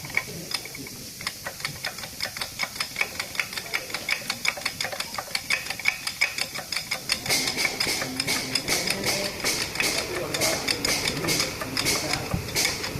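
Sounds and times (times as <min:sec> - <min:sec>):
hammer striking steel: 0:07.2 - 0:12.9.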